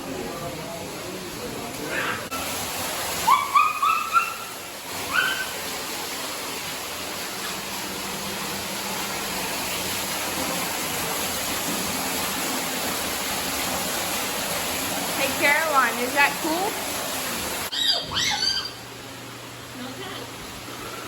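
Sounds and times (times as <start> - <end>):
short high rising calls: 17.7 - 18.9.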